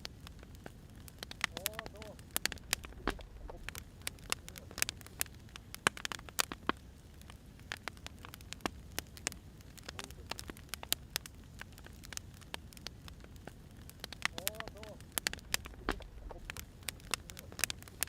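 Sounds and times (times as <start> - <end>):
low steady rumble: 0.0 - 5.8, 12.8 - 18.0
firewood crackling and popping: 0.0 - 18.0.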